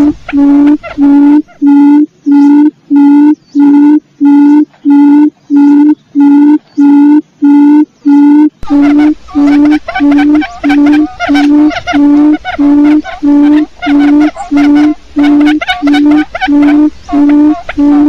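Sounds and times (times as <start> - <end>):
higher wavering call: 0.0 - 6.4, 8.1 - 18.0
low hooting quail call: 0.0 - 18.0.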